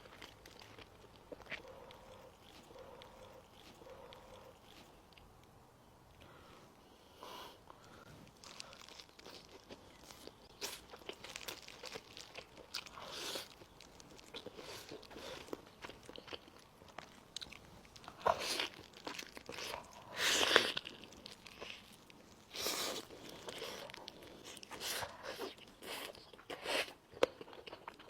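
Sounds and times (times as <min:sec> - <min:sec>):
person biting and chewing: 0:00.0 - 0:05.3.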